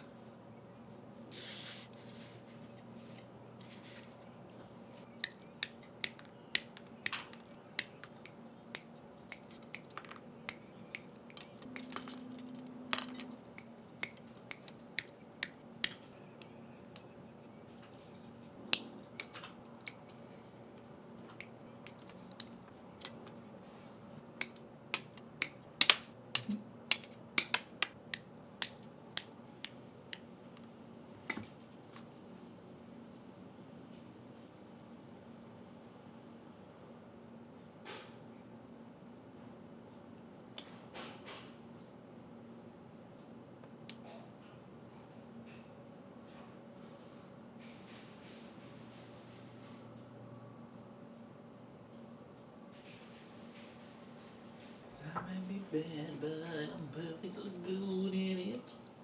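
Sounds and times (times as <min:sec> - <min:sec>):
plastic parts clicking together: 0:05.0 - 0:17.1, 0:18.7 - 0:20.2, 0:24.4 - 0:30.2.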